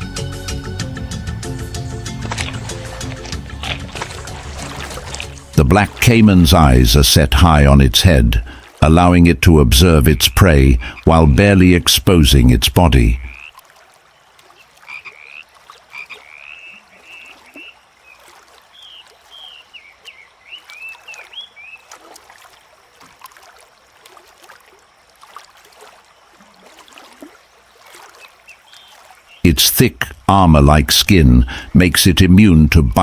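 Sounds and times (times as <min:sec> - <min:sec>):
frogs chirping: 0:00.3 - 0:31.8.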